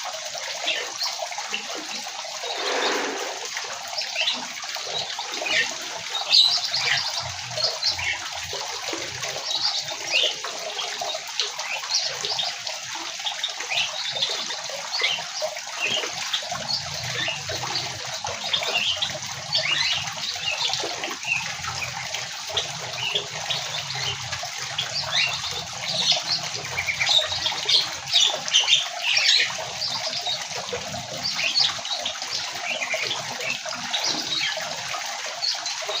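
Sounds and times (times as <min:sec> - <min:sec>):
steady hiss: 0:02.4 - 0:03.4.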